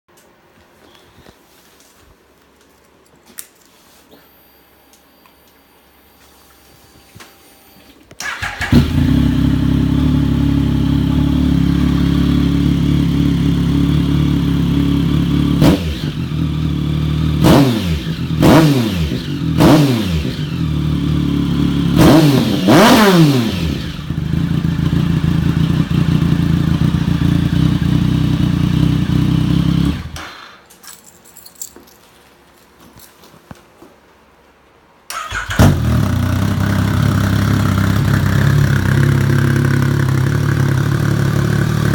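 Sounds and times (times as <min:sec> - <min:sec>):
motorcycle engine revving: 0:08.2 - 0:30.3, 0:35.1 - 0:41.9
second motorcycle idling: 0:08.3 - 0:18.4, 0:23.7 - 0:30.2, 0:35.7 - 0:41.9.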